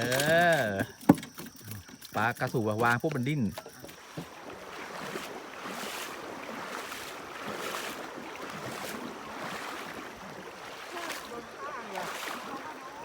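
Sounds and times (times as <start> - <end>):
stream water flowing: 0.0 - 13.0
soft knocks or splashes: 2.8 - 13.0.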